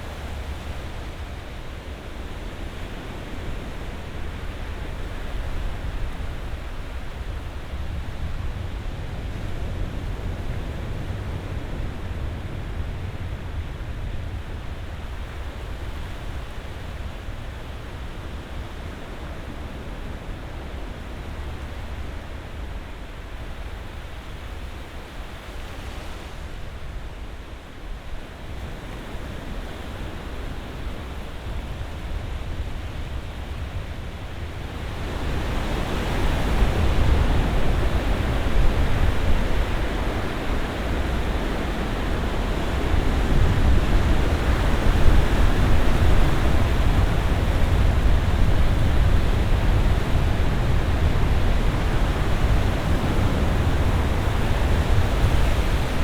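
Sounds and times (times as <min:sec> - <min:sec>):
ocean surf washing ashore: 0:31.4 - 0:56.0.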